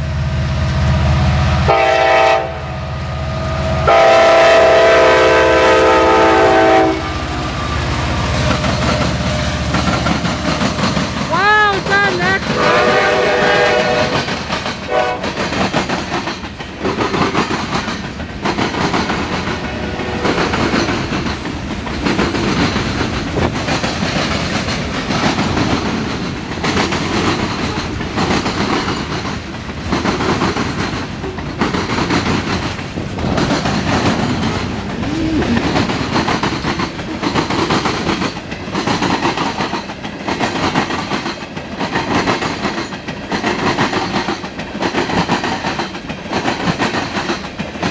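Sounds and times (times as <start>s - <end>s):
train horn: 0.7s - 7.9s, 12.5s - 14.3s, 14.9s - 15.4s, 19.8s - 20.4s
wheels clacking over rail joints: 3.9s - 47.9s.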